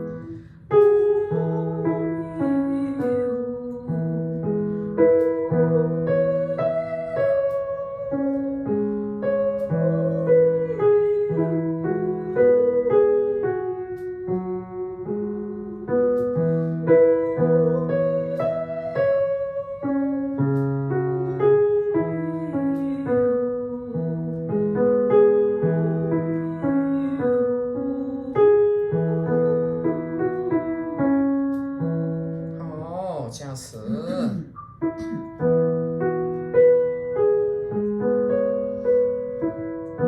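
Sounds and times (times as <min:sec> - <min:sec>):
piano chords: 0:00.0 - 0:40.0
person singing vocal exercise: 0:33.0 - 0:35.2.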